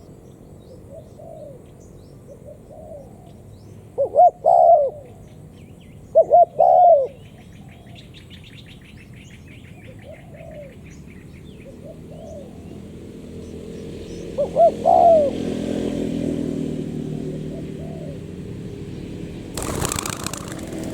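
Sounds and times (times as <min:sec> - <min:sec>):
small birds chirping: 0:00.0 - 0:15.5, 0:17.0 - 0:20.9
dove cooing: 0:00.8 - 0:01.7, 0:02.3 - 0:03.4, 0:04.0 - 0:05.2, 0:06.1 - 0:08.0, 0:09.8 - 0:10.8, 0:11.6 - 0:12.8, 0:14.3 - 0:15.7, 0:17.1 - 0:18.4, 0:19.6 - 0:20.9.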